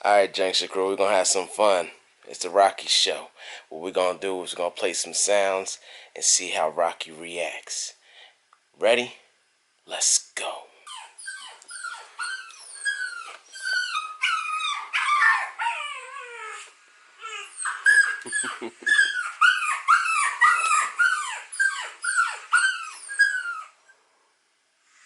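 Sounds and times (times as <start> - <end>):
dog whimpering: 10.9 - 23.8.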